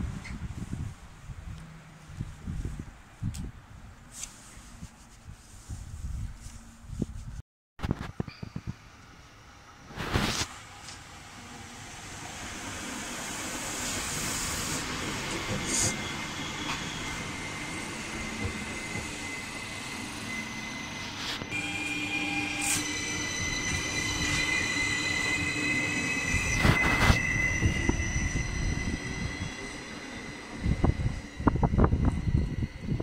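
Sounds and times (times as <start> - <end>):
train rolling noise: 8.1 - 33.0
wheels squealing: 14.0 - 33.0.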